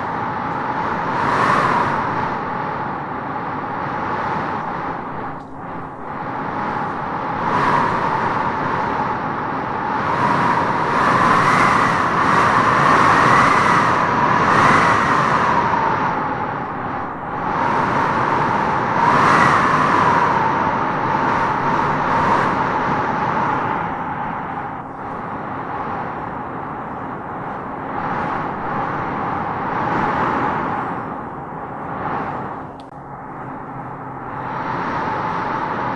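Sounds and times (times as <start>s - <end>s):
wind howling in gusts: 0.0s - 35.9s.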